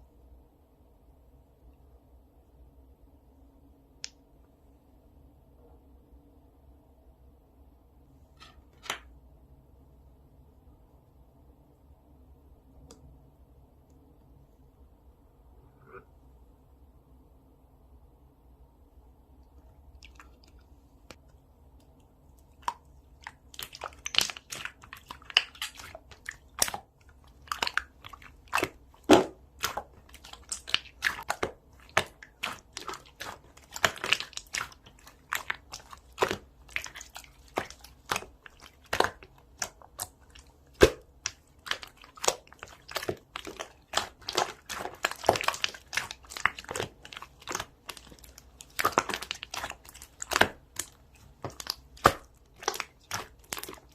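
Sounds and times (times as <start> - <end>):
close-up crunching and crackling: 22.4 - 53.9.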